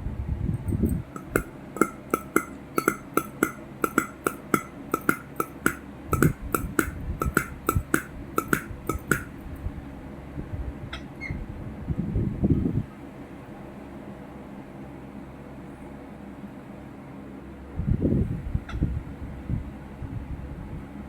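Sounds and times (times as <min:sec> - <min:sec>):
light clinking taps: 0:00.6 - 0:09.4.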